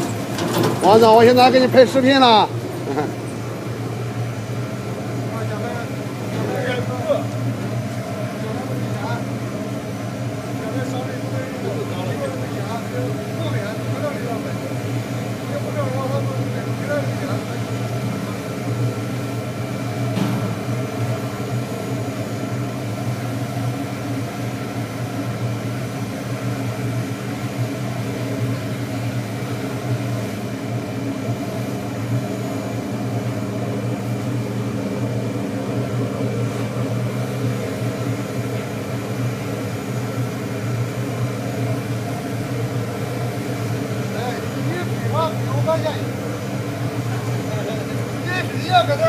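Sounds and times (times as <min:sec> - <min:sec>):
furnace machinery drone: 0:00.0 - 0:49.0.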